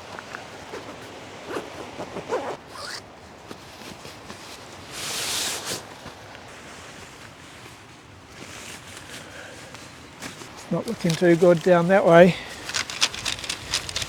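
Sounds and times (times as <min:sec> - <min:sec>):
zipper being pulled open: 0:00.7 - 0:03.1, 0:12.5 - 0:14.0.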